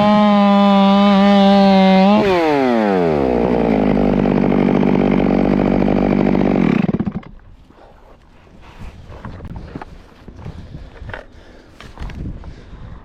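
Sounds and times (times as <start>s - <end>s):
chainsaw engine idling down: 0.0s - 7.4s.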